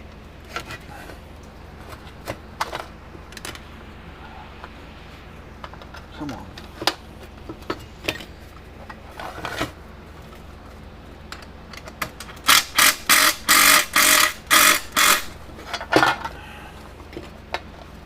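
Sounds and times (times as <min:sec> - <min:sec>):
power drill buzzing: 0:12.5 - 0:15.3.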